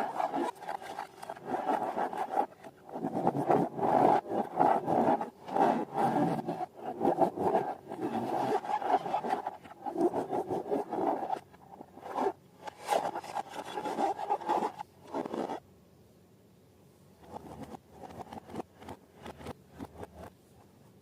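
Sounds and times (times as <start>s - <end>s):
slime and balloons rubbing: 0.0s - 15.6s.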